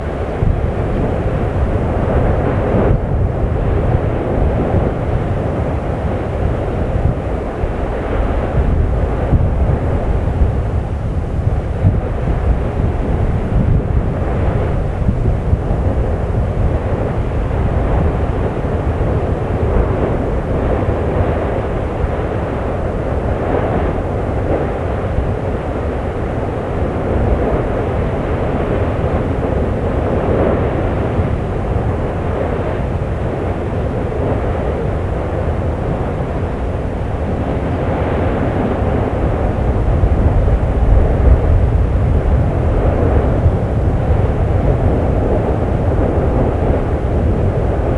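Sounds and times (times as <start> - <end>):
volcano vent roaring: 34.0 - 47.9.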